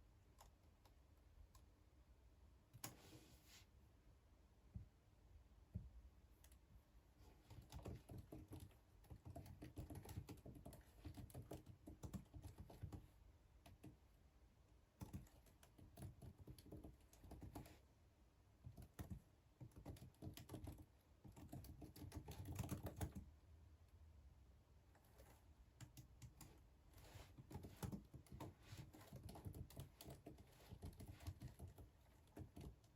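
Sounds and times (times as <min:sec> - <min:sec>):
typing on keyboard: 0:07.4 - 0:14.0, 0:15.0 - 0:17.8, 0:18.6 - 0:23.3, 0:25.0 - 0:32.9.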